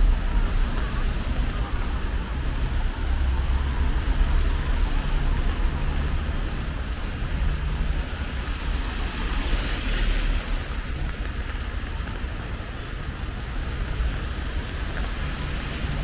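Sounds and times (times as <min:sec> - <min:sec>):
car tyres swishing on wet road: 0:00.0 - 0:16.0
city traffic rumble: 0:00.0 - 0:16.0
rain hiss: 0:12.8 - 0:16.0.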